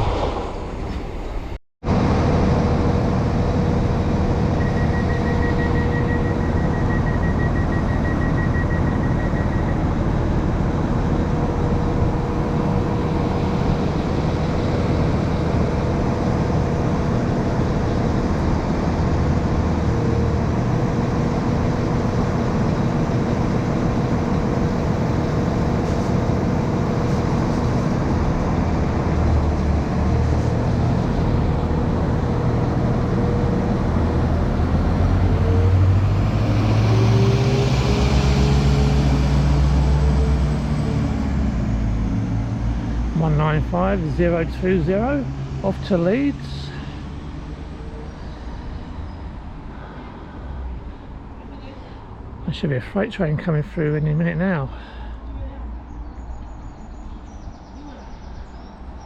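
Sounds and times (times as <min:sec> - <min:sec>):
train diesel engines running: 0:00.0 - 0:56.0
high beeps: 0:04.6 - 0:09.8.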